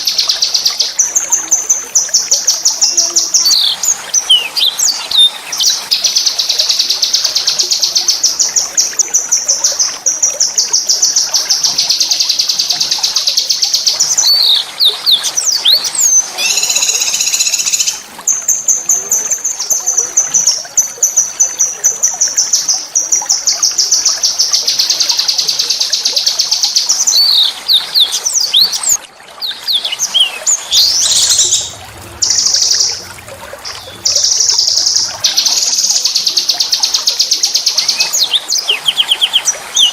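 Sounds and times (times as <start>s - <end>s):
songbird trilling: 14.2s - 18.0s.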